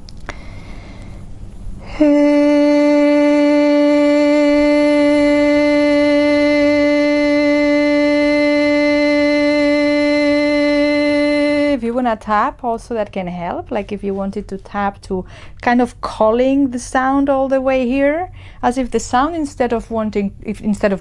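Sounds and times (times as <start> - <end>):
woman chanting sustained vowel: 1.8 - 12.8.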